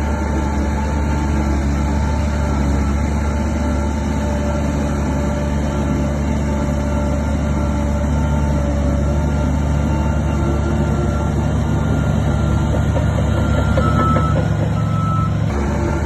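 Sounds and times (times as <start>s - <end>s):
heavy diesel engine droning: 0.0s - 16.0s.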